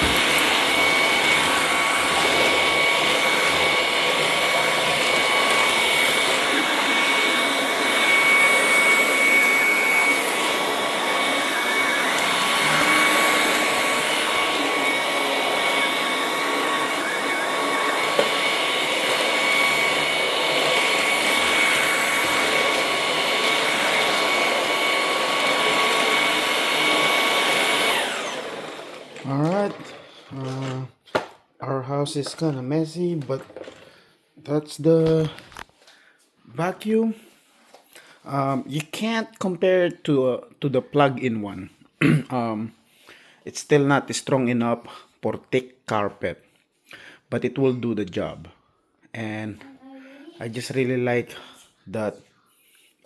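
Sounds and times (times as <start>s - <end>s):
cordless vacuum running: 0.0s - 31.2s.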